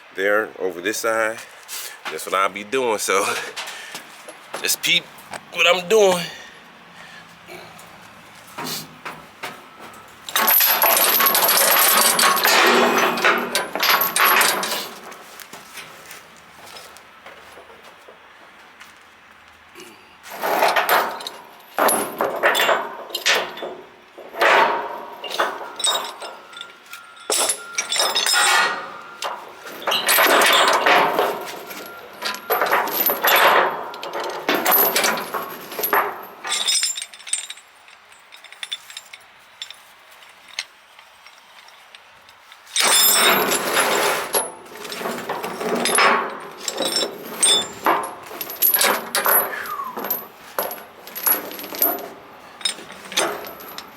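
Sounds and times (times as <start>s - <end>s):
metal chains rattling: 9.4s - 16.0s, 20.3s - 53.9s.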